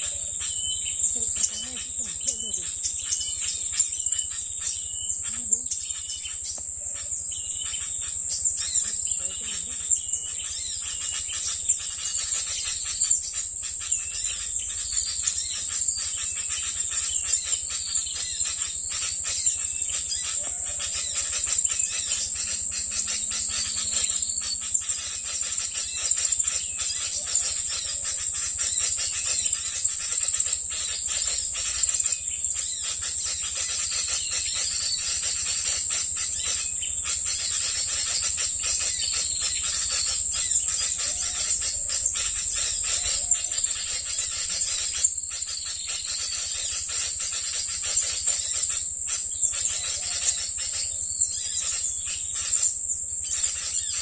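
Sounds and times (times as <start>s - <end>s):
small birds chirping: 0.0s - 54.0s
high-pitched buzz with crackling: 16.9s - 45.1s.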